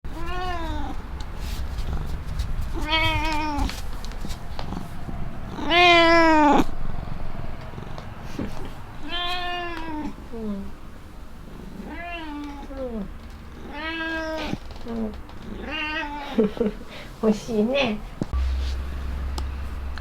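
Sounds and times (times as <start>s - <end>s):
cat meowing: 0.1s - 4.0s, 4.6s - 6.8s, 7.7s - 16.6s.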